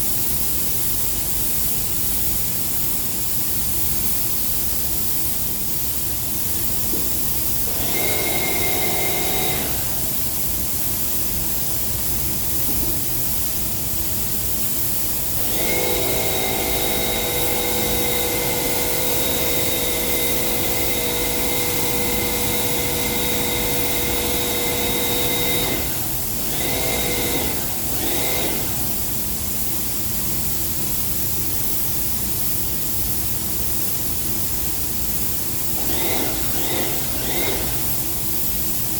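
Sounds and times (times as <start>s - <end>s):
paint sprayer hiss: 0.1s - 38.9s
machine whine: 7.6s - 10.2s, 15.4s - 29.1s, 35.8s - 38.2s.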